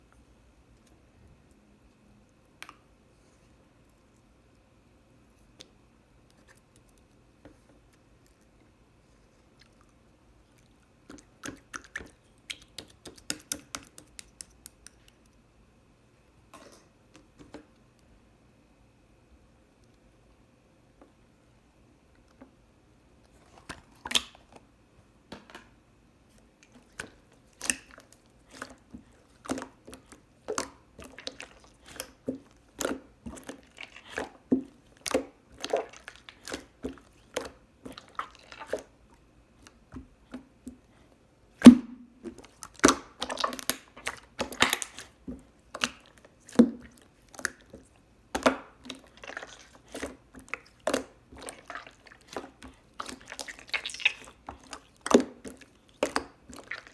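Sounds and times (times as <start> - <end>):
chewing gummy candy: 9.4 - 15.4, 26.3 - 41.1, 42.3 - 56.9.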